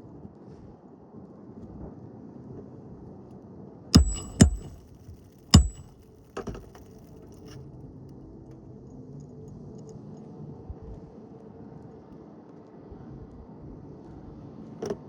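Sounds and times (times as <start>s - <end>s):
metal-on-metal knocks: 4.0s - 4.8s, 5.6s - 6.0s.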